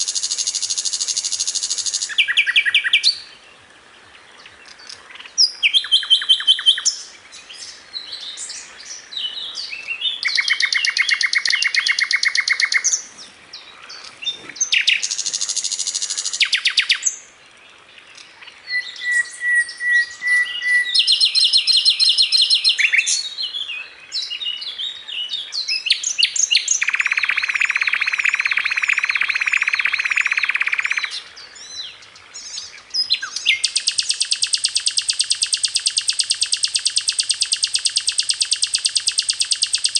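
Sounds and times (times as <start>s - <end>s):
flycatcher singing trills: 0.0s - 3.4s, 4.4s - 17.2s, 18.1s - 24.7s, 25.6s - 39.9s.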